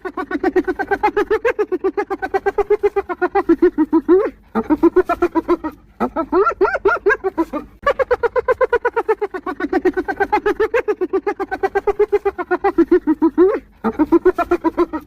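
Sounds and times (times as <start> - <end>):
hyena giggling yelps: 0.0 - 15.0.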